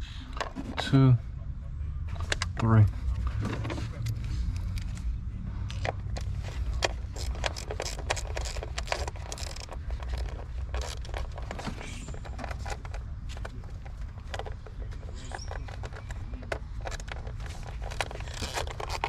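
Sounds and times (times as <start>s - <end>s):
hand ratchet clicking: 5.7s - 11.6s, 17.0s - 19.0s.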